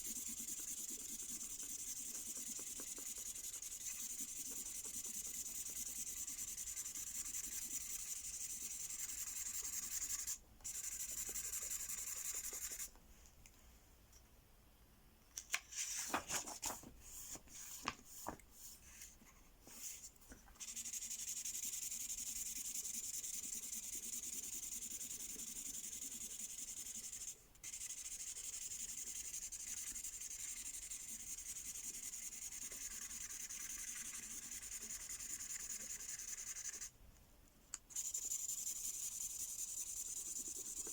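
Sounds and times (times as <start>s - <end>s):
marker scribbling on paper: 0.0s - 12.9s, 20.6s - 36.9s, 37.9s - 40.9s.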